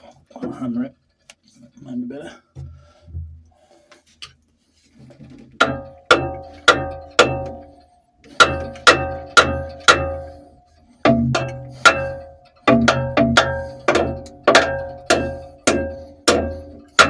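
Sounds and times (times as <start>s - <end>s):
hammer blows on steel: 8.3s - 17.0s.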